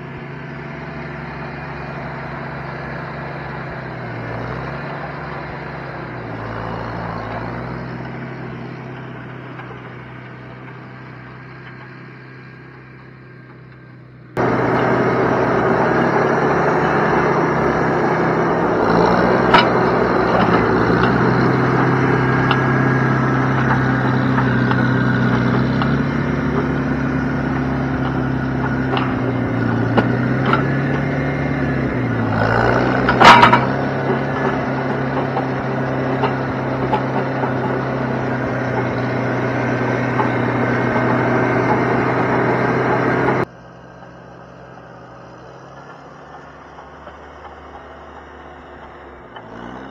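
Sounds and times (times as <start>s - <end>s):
engine running: 0.0s - 49.9s
sharp creaks and knocks: 14.4s - 43.5s.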